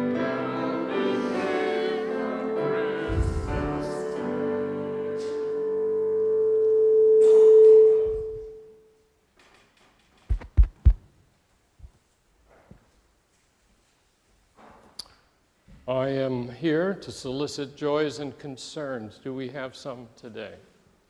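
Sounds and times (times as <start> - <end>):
hymn chord on keyboard: 0.0 - 8.6
low thumps: 3.1 - 4.0.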